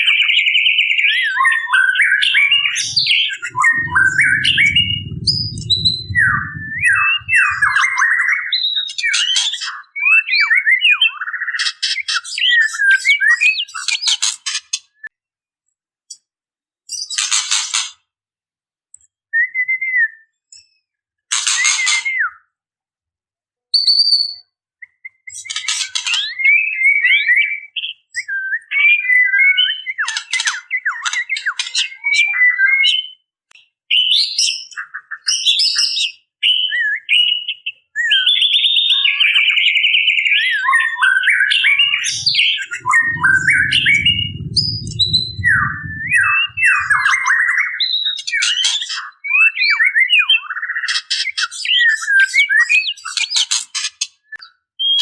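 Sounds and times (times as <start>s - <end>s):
low rumble: 2.4s - 8.0s, 41.5s - 47.4s.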